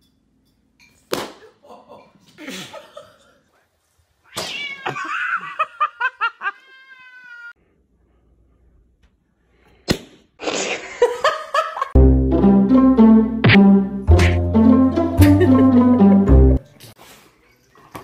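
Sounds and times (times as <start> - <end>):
cat yowling and meowing: 4.3 - 5.3, 6.6 - 7.5.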